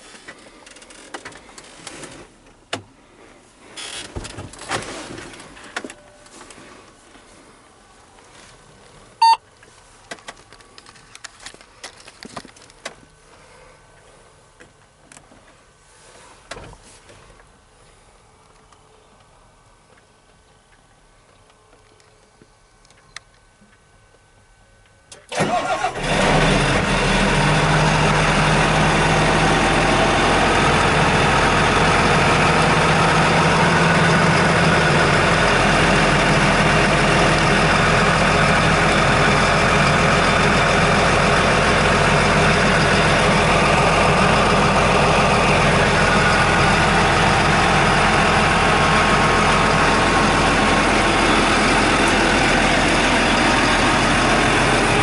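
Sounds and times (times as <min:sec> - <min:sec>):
diesel engine cranking and starting: 0:25.1 - 0:55.0
diesel engine idling: 0:25.3 - 0:55.0.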